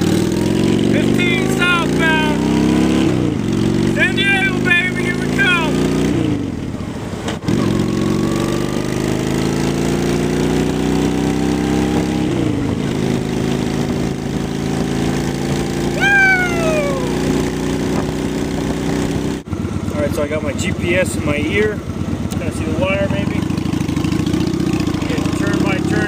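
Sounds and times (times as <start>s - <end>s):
motorcycle engine accelerating: 0.0s - 26.0s
short falling tone: 16.0s - 17.3s.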